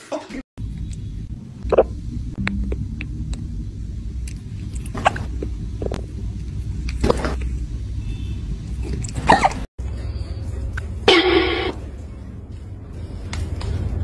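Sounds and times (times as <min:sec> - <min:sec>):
wet sucking clicks: 0:00.7 - 0:03.5, 0:04.1 - 0:07.6.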